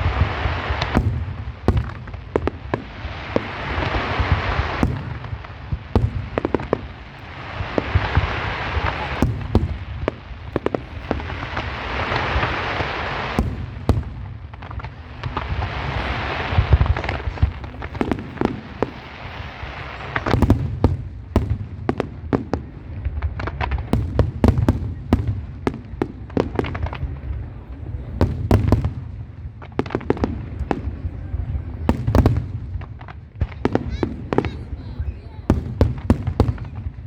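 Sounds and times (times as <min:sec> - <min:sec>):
fireworks crackling and hissing: 0:00.0 - 0:37.0.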